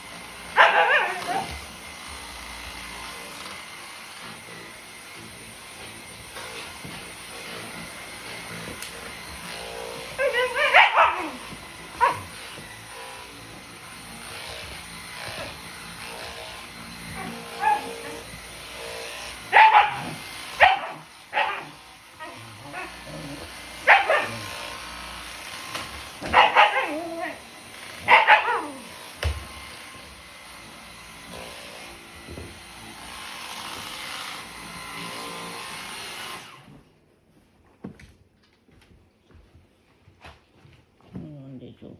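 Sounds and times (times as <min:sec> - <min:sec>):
vacuum cleaner whirring: 0:00.0 - 0:37.0
dog barking: 0:00.5 - 0:01.6, 0:10.2 - 0:12.4, 0:17.1 - 0:18.2, 0:19.5 - 0:24.5, 0:26.2 - 0:27.4, 0:28.0 - 0:28.8.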